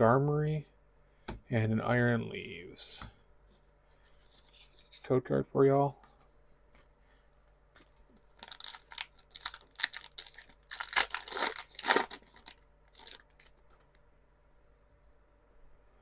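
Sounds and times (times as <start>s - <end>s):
foil wrapper tearing and crinkling: 8.3s - 13.6s.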